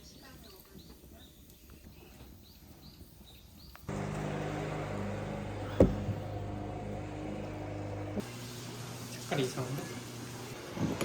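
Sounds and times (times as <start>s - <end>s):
small birds chirping: 0.0s - 3.9s
steady low hum: 3.9s - 9.0s
single thump: 5.7s - 6.2s.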